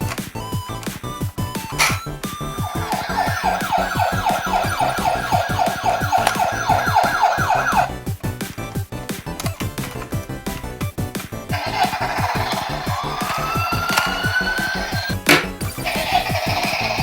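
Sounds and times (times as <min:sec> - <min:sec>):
background music with beat: 0:00.0 - 0:17.0
siren wailing: 0:01.6 - 0:07.9, 0:11.6 - 0:17.0.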